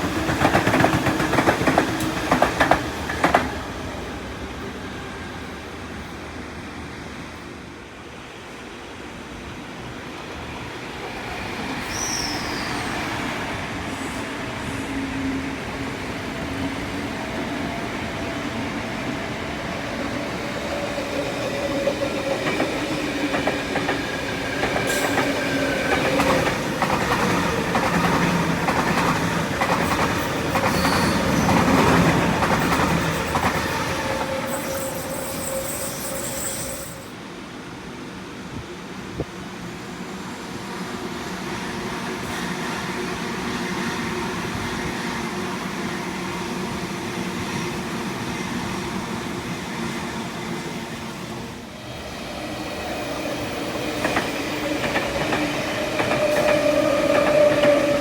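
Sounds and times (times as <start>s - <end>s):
train passing: 0.0s - 58.0s
wheel squeals: 30.6s - 31.5s, 34.2s - 37.1s.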